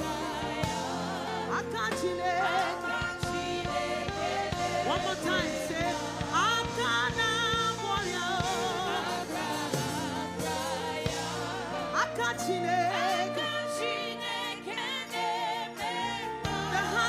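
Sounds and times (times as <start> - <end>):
backing band with steady beat: 0.0 - 13.3
voices singing with vibrato: 0.0 - 17.0.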